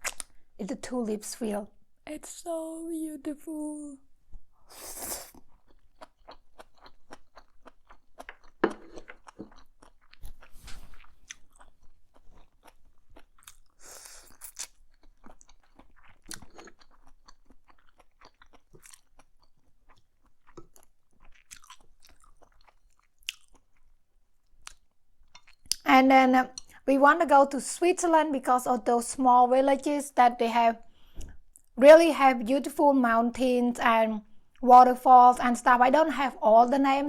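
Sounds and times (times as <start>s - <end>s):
person chewing crunchy food: 5.0s - 25.8s.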